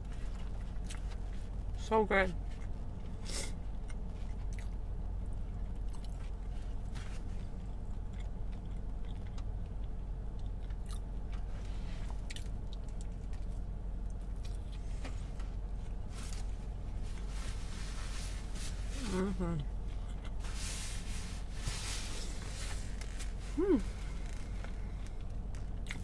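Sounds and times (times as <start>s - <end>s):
chewing and biting food: 0.0s - 1.6s, 2.5s - 14.9s, 24.4s - 26.0s
steady low hum: 0.0s - 26.0s.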